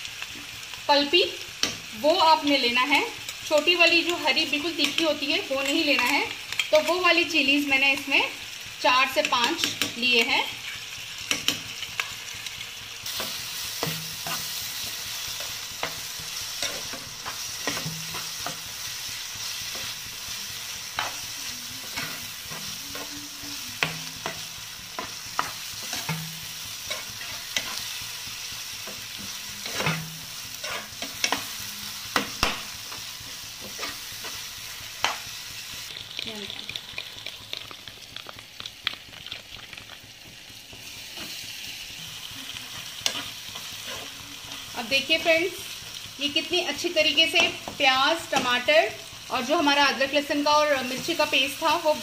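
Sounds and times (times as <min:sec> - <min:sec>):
food sizzling in hot oil: 0:00.0 - 0:52.0
steel spoon scraping a pan: 0:10.6 - 0:20.0, 0:20.8 - 0:24.4, 0:25.0 - 0:28.0, 0:28.8 - 0:32.4, 0:33.6 - 0:34.4, 0:42.8 - 0:44.7.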